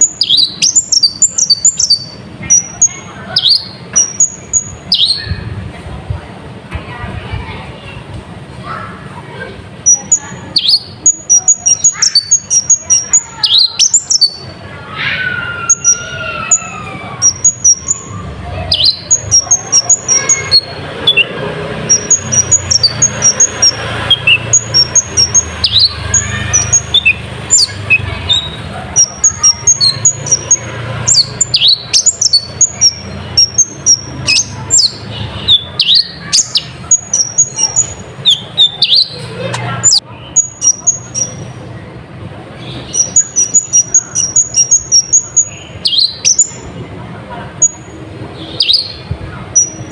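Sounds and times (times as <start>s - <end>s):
bird chirps and twitters: 0.0s - 5.8s, 8.7s - 41.7s, 42.5s - 49.9s.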